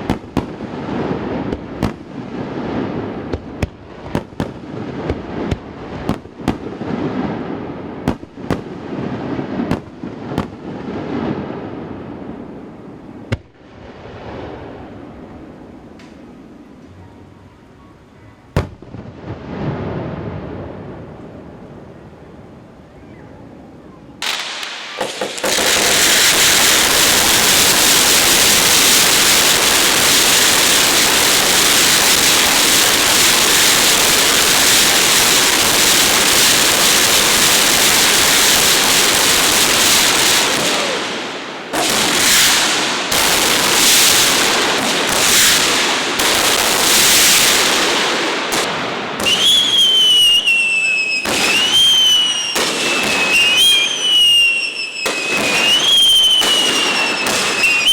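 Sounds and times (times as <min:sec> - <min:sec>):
fireworks bangs: 0:00.0 - 0:16.4, 0:24.2 - 0:57.9
fireworks crackling bursts: 0:00.0 - 0:16.9, 0:24.1 - 0:57.9
whistling firework shells: 0:24.2 - 0:57.9.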